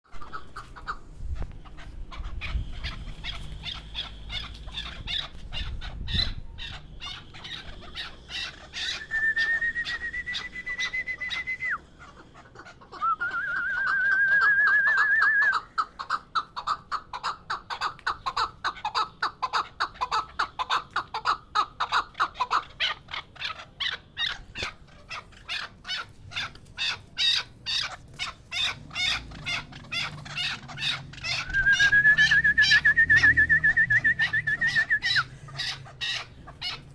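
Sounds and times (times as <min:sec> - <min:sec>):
partridge clucking calls: 0:00.1 - 0:36.9
wavering whistle: 0:08.9 - 0:11.8, 0:13.0 - 0:15.5, 0:31.4 - 0:35.3.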